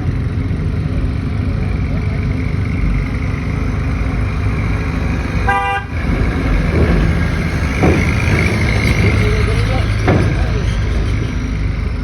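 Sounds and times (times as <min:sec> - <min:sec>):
truck engine running: 0:00.0 - 0:12.0
short horn toot: 0:05.4 - 0:06.0.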